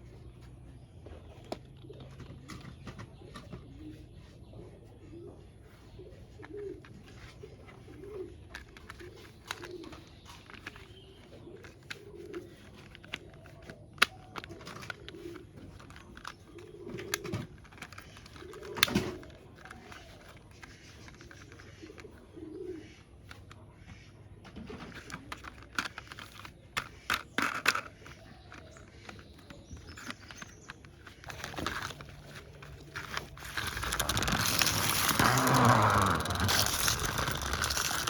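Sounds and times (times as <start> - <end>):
pigeons cooing: 1.8 - 26.4.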